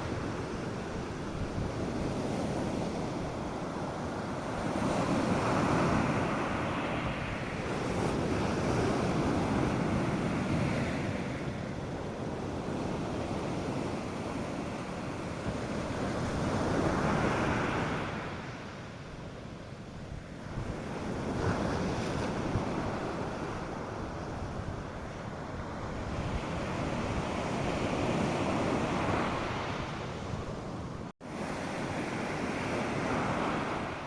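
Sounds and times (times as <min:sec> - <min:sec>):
surf breaking on beach: 0:00.0 - 0:18.9, 0:31.2 - 0:34.0
wind on microphone: 0:00.0 - 0:34.0.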